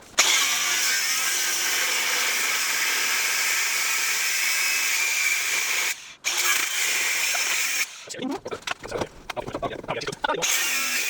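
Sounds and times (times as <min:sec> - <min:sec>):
angle grinder cutting steel: 0:00.2 - 0:08.1, 0:10.4 - 0:11.0.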